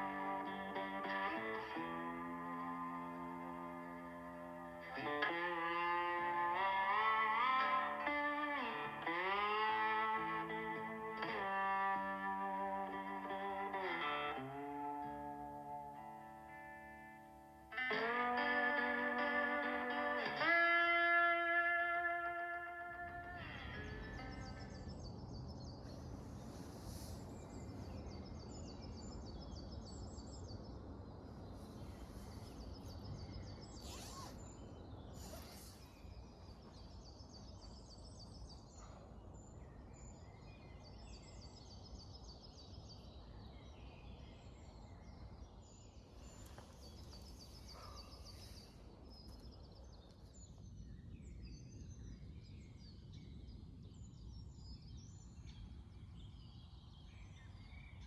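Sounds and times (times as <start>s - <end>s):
birds singing trilled phrases: 17.2s - 58.0s.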